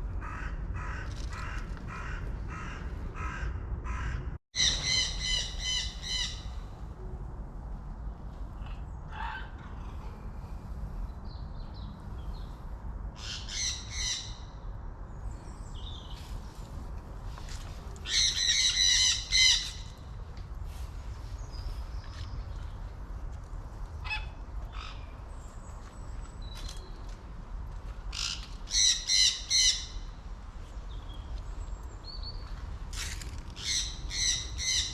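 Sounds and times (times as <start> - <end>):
harsh caw-like bird calls: 0.2 - 6.7, 8.7 - 10.2, 18.0 - 20.0, 24.0 - 25.2, 28.1 - 30.1.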